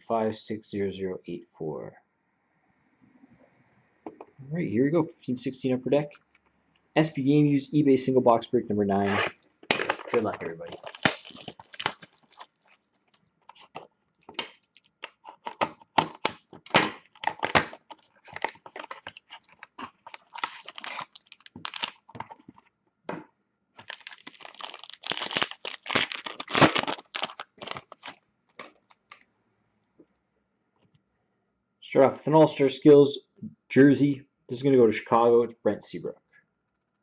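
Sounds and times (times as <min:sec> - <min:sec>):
wrapper crinkling and tearing: 0:09.0 - 0:22.5, 0:23.8 - 0:29.2.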